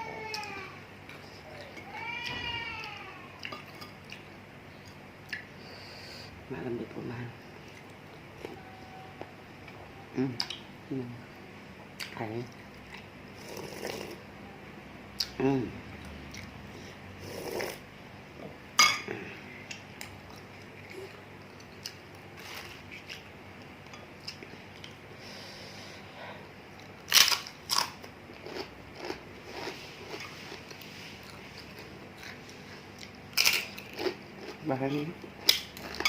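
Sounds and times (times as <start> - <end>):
person chewing and biting: 26.8 - 34.6.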